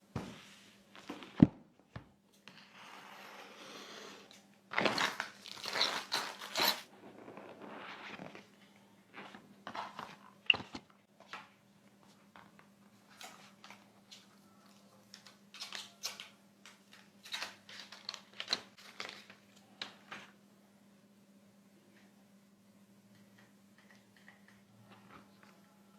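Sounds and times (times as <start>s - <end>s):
packaging crinkling and tearing: 4.7s - 6.9s.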